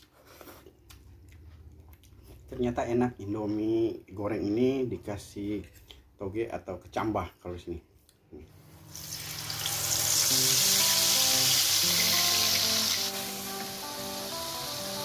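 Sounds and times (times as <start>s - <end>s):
food sizzling in a pan: 8.7s - 15.0s
background music: 9.5s - 15.0s.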